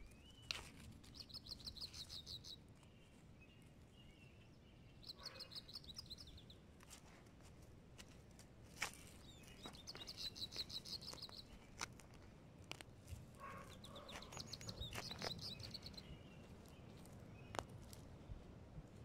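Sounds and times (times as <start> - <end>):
songbird trilling: 0.0 - 2.6, 3.5 - 6.6, 9.2 - 11.8, 13.4 - 17.7.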